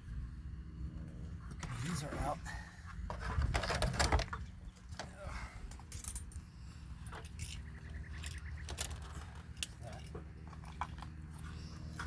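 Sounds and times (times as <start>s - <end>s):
steady low rumble: 0.0s - 3.6s.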